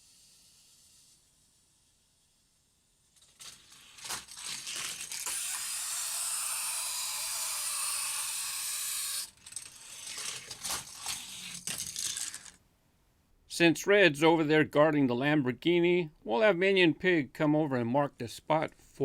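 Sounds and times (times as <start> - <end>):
toy car on plastic track: 0.0 - 12.6.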